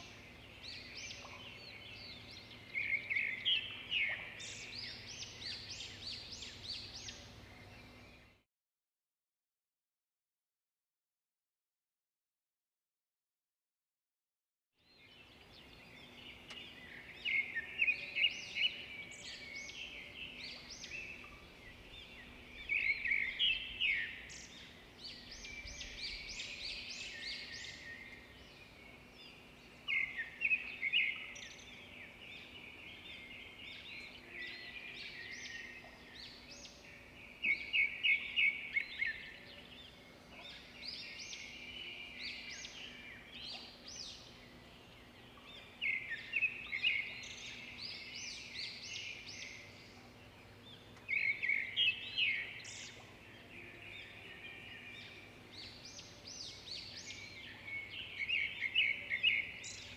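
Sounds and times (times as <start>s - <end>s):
birds chirping and trilling: 0.0s - 8.4s, 14.8s - 59.9s
faint steady hum: 15.2s - 59.9s.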